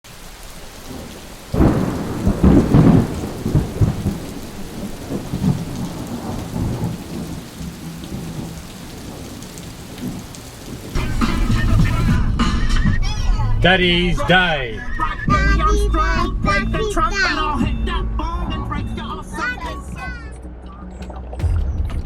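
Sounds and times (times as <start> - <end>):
steady rain: 0.0 - 12.4
loud thunderclap: 0.9 - 12.4
low thunder rumble: 0.9 - 19.1.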